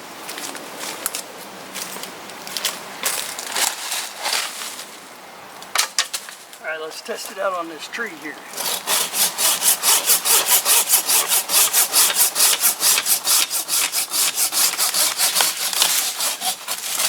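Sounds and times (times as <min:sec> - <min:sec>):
saw cutting branch: 0:08.5 - 0:17.0.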